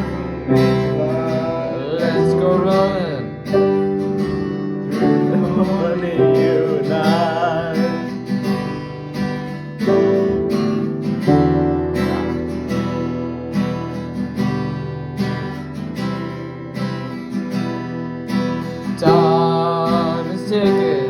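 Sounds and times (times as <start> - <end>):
strummed guitar chords: 0.0 - 21.0.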